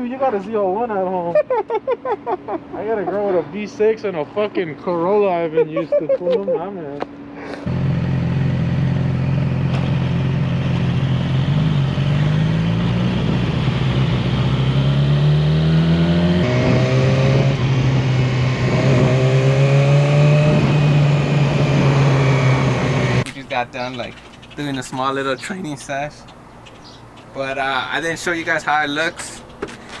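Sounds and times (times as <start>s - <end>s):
motorcycle engine accelerating: 7.1s - 23.3s.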